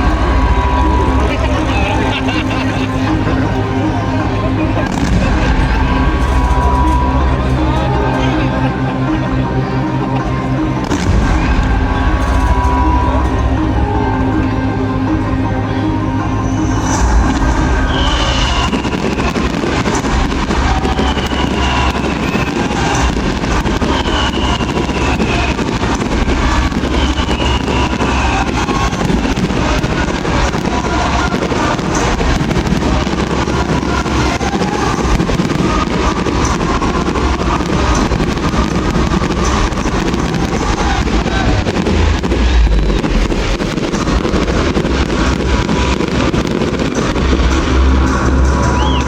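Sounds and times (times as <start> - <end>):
fireworks crackling and banging: 0.0 - 49.0
heavy rumble: 0.0 - 49.0
falling firework whistles: 16.7 - 47.3, 48.7 - 49.0.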